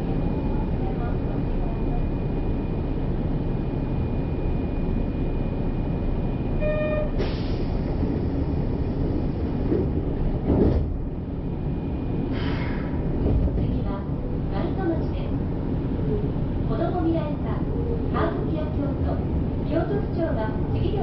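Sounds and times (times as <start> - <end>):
train low rumble: 0.0 - 21.0
hiss of air: 7.2 - 7.9, 12.3 - 12.9
train doors closing thud: 9.7 - 11.0.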